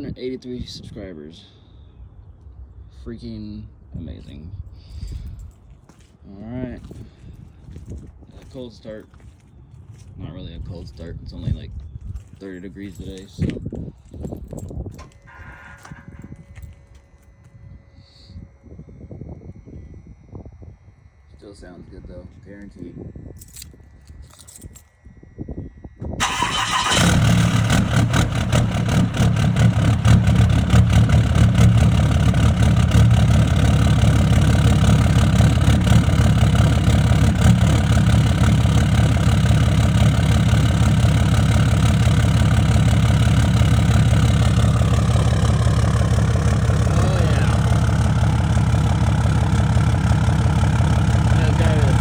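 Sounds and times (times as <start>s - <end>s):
diesel engine starting and idling: 15.0s - 16.8s, 26.2s - 52.0s.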